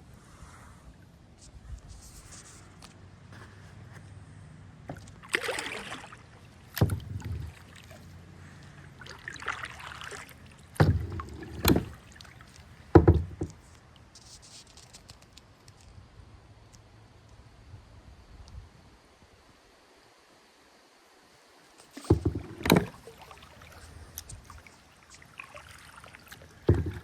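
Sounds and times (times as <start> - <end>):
paddle splashing water: 4.8 - 15.1, 21.7 - 27.0
paddle knocking on kayak hull: 6.8 - 7.8, 10.8 - 12.2, 12.9 - 13.6, 22.0 - 23.7, 26.3 - 27.0.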